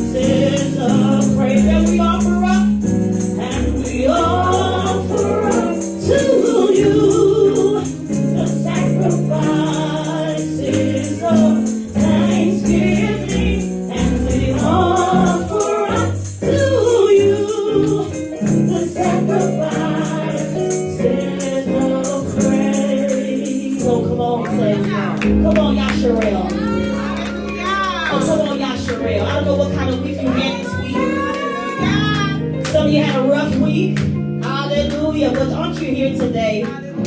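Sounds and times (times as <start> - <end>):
shaken percussion rhythm: 0.0 - 24.2
choir singing: 0.0 - 25.4, 28.1 - 32.4
bass and keyboard: 0.0 - 37.0.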